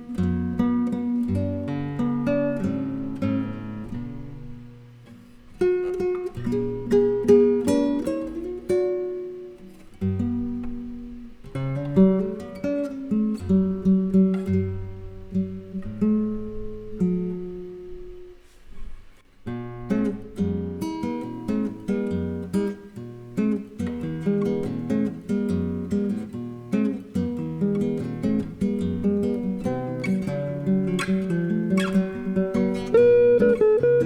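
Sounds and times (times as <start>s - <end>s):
nylon-string guitar: 0.0s - 34.0s
electric guitar: 23.7s - 34.0s.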